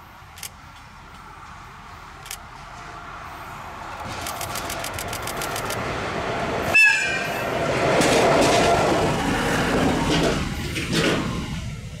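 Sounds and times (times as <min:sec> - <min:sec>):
train wheels clattering over rail joints: 0:07.6 - 0:11.6.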